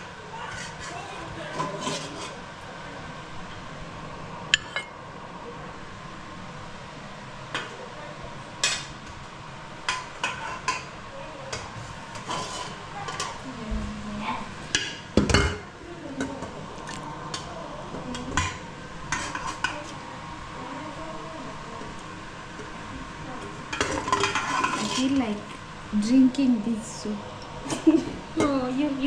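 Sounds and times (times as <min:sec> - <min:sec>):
spoon clinking and scraping pots: 0:00.5 - 0:02.4, 0:09.9 - 0:10.9, 0:11.5 - 0:13.4, 0:18.2 - 0:19.9, 0:23.7 - 0:25.2.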